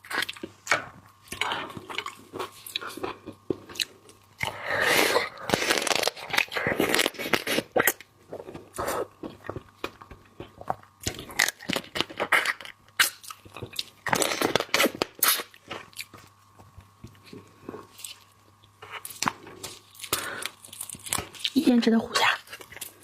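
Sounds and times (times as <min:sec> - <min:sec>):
chewing: 0:06.2 - 0:23.0.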